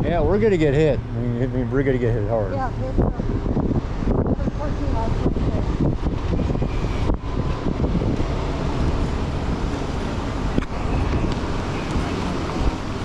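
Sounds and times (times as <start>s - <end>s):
car in motion rumbling: 0.0s - 13.0s
wind: 0.0s - 13.0s.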